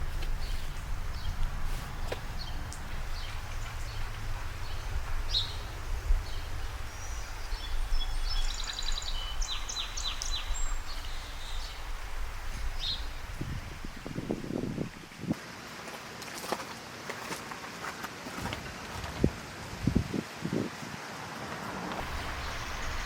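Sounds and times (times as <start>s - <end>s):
steady low rumble: 0.0s - 15.1s, 22.0s - 23.0s
wild birds chirping: 0.0s - 15.2s, 22.0s - 23.0s.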